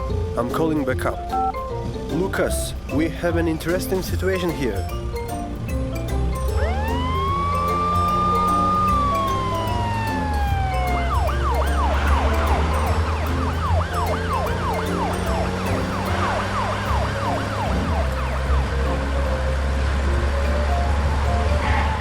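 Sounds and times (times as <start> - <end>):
background music with bass line: 0.0 - 22.0
cartoon siren yelp: 6.6 - 18.2.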